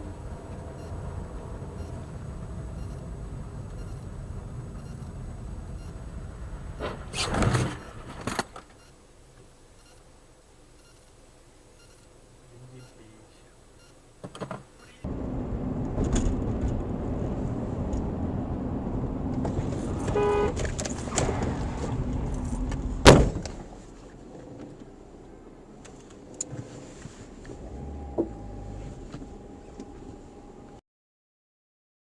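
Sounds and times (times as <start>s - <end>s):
car driving: 0.0s - 9.2s, 14.9s - 30.8s
car horn beep: 19.8s - 21.3s
loud crash impact: 22.9s - 23.6s.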